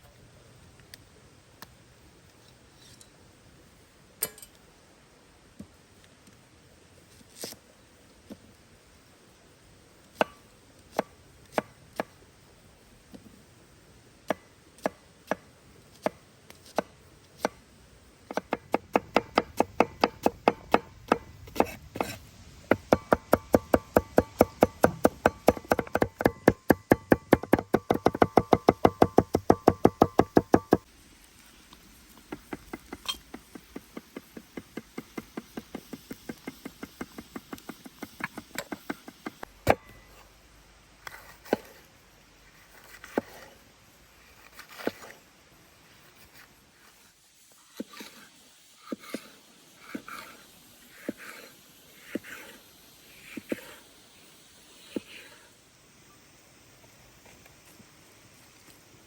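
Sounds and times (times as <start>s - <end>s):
knife chopping on cutting board: 18.3s - 30.8s.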